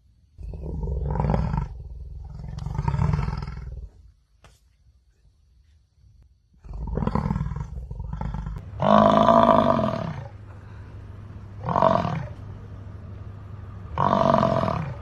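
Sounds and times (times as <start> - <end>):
bison bellowing: 6.8 - 15.0.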